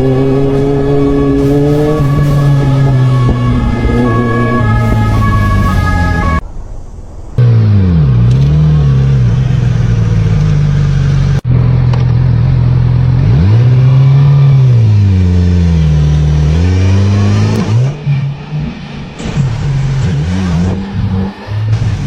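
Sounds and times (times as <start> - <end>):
motorcycle engine running: 7.4 - 16.5.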